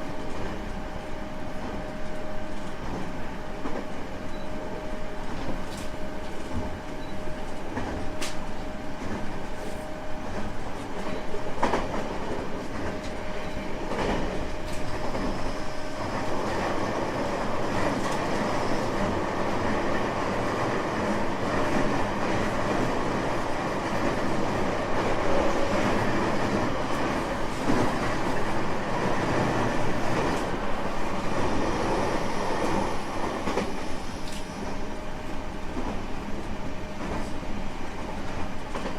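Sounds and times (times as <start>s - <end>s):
train wheels rumbling on rails: 0.0s - 38.9s
rail-joint clicks: 5.2s - 19.2s, 32.6s - 34.9s, 35.7s - 37.5s, 38.2s - 38.9s.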